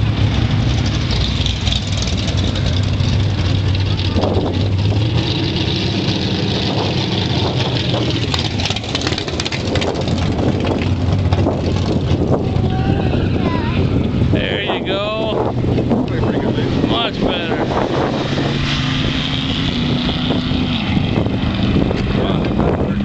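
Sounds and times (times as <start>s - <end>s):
drag car engines idling: 0.0s - 17.9s.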